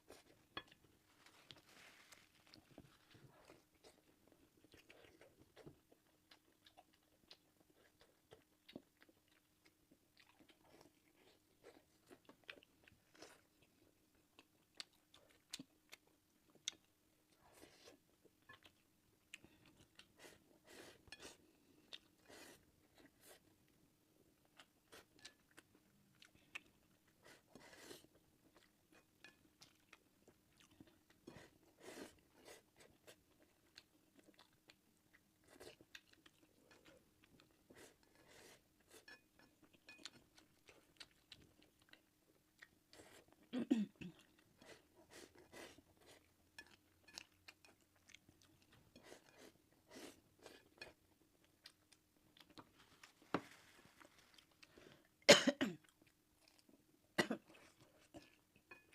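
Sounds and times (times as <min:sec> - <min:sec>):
person chewing with wet clicks: 0:03.2 - 0:20.4, 0:24.4 - 0:43.5, 0:44.1 - 0:53.2.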